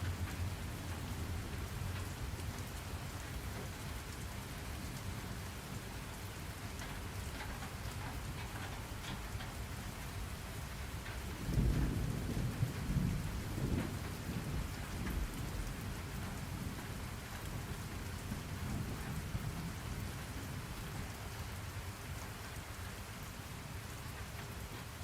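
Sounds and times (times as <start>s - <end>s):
rain falling: 0.0s - 25.0s
thunder rolling: 11.4s - 15.7s.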